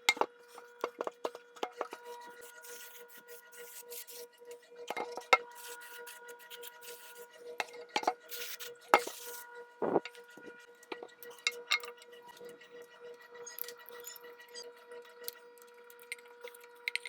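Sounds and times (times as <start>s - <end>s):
faint steady hum: 9.0s - 11.0s.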